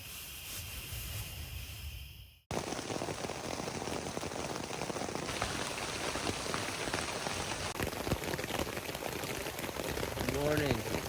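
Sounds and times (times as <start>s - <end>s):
rain pattering on a tarp: 2.5s - 11.0s.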